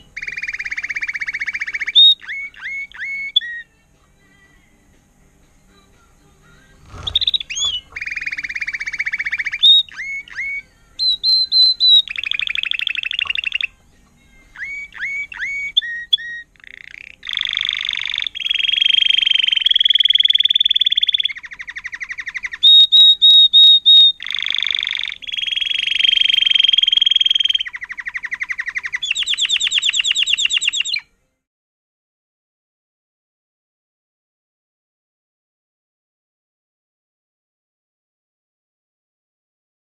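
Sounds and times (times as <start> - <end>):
canary singing trills: 0.0 - 4.4, 6.6 - 31.1.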